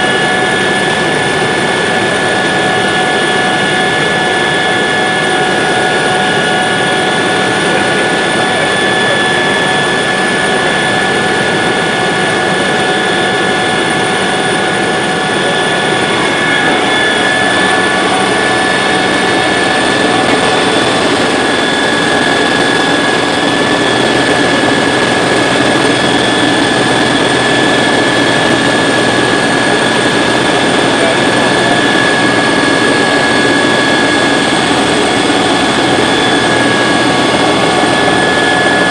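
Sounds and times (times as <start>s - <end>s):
helicopter engine and rotor roar: 0.0s - 38.9s
high whines: 0.0s - 38.9s.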